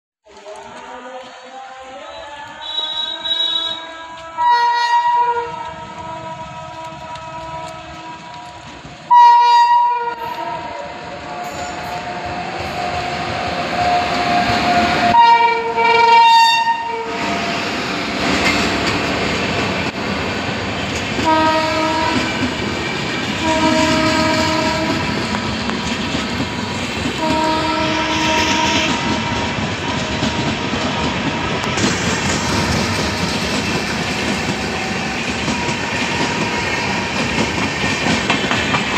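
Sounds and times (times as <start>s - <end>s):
locomotive horn blasts: 2.6s - 8.3s, 9.1s - 11.6s, 13.8s - 17.4s, 21.2s - 22.4s, 23.4s - 25.2s, 27.2s - 31.6s
train coaches rumbling and clattering: 5.2s - 38.9s.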